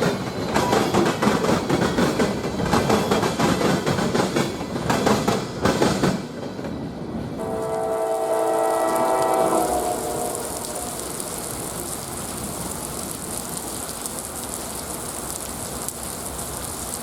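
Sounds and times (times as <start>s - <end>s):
train wheels clattering: 0.0s - 7.0s
locomotive air horn chord: 7.4s - 11.7s.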